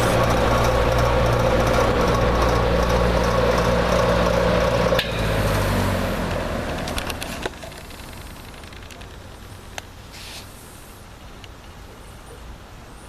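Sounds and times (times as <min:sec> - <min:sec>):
box fan running: 0:00.0 - 0:10.0.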